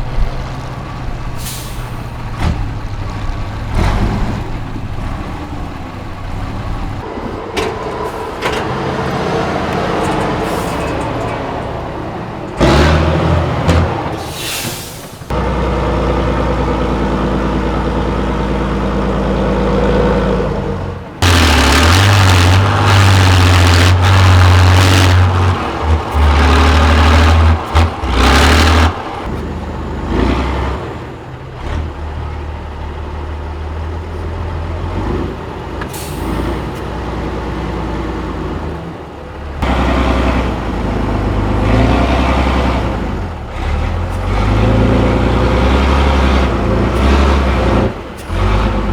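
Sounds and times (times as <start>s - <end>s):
diesel truck engine revving: 0.0s - 48.9s.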